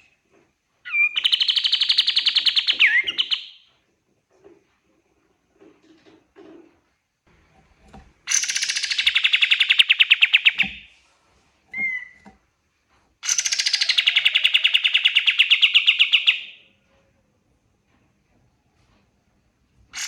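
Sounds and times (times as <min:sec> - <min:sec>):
bird trilling: 0:08.3 - 0:10.8, 0:13.2 - 0:16.5.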